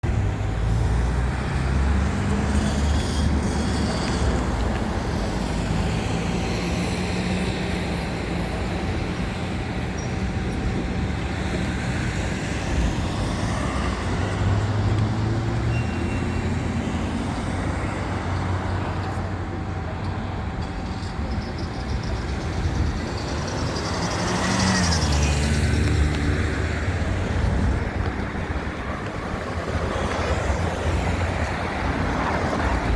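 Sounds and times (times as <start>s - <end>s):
road traffic noise: 0.0s - 32.9s.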